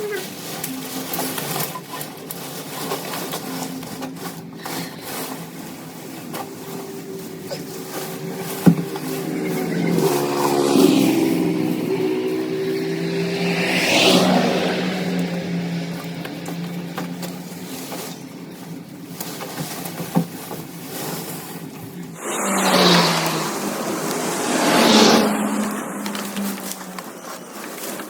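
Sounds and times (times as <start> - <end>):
hissing noise: 22.1 - 28.0
motor humming: 22.2 - 28.0.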